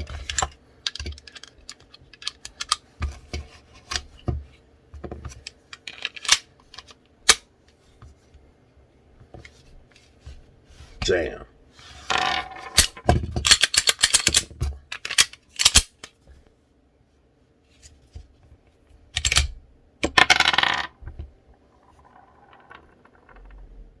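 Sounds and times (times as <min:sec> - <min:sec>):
pistol slide metallic clicks: 0:15.1 - 0:16.1
clattering rattle: 0:21.9 - 0:23.8.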